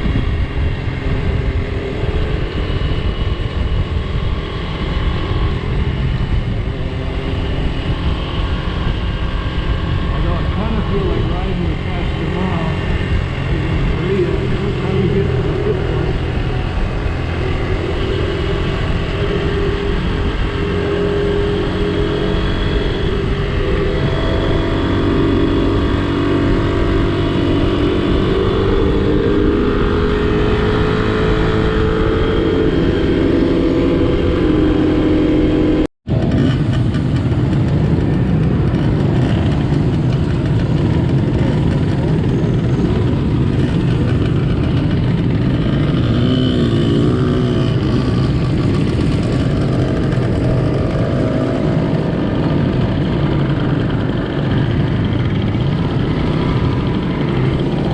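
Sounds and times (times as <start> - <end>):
motorcycle engine running: 0.0 - 57.9
wind rushing: 12.7 - 36.2.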